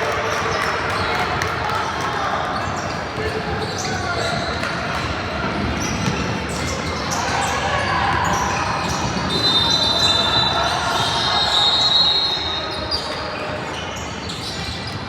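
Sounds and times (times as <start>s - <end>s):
spectators chatting: 0.0s - 15.0s
basketball bouncing on court: 3.1s - 7.0s.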